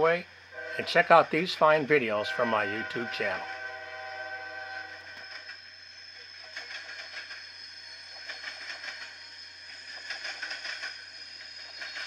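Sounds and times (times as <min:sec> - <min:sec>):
train running rumble: 0:00.0 - 0:12.0
train horn blasts: 0:00.5 - 0:05.3.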